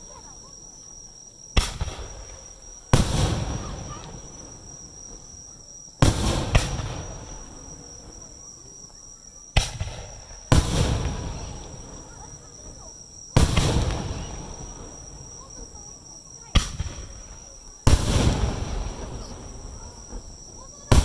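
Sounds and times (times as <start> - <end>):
firework shells bursting: 1.5 - 8.4, 9.5 - 21.0
rolling echo: 9.5 - 21.0.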